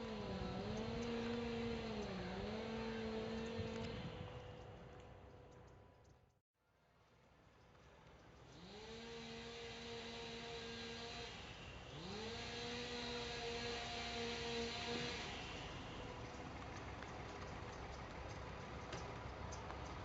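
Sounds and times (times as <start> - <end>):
distant chainsaw revving: 0.0 - 4.2, 8.5 - 16.1.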